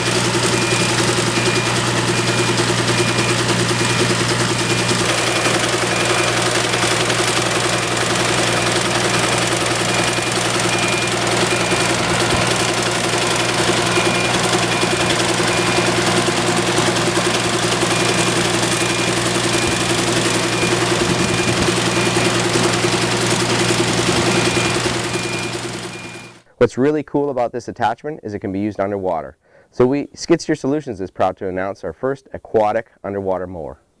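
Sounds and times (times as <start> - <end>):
diesel engine running under load: 0.0 - 26.4
mower high chatter: 0.0 - 26.5
short high beep: 8.3 - 26.4.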